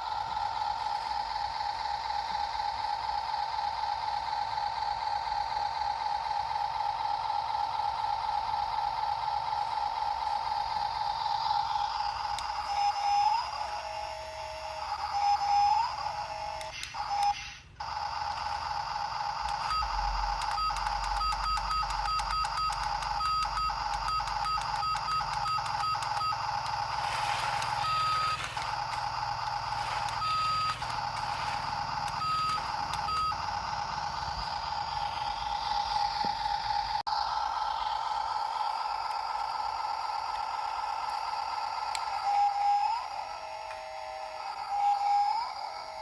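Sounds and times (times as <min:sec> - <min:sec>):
toy truck electronic whine: 0:00.0 - 0:46.0
short reversing beeps: 0:19.6 - 0:34.7.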